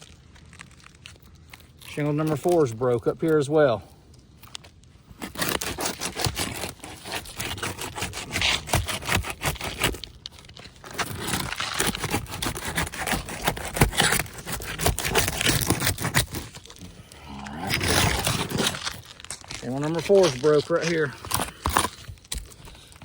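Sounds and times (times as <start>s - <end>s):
shingle scraping and cracking: 0.0s - 23.0s.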